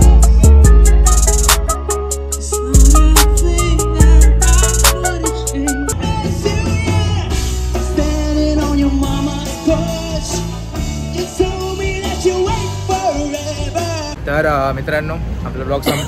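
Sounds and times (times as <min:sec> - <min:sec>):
person singing: 0:00.0 - 0:01.3, 0:02.4 - 0:14.2
steady drum beat: 0:00.0 - 0:13.8.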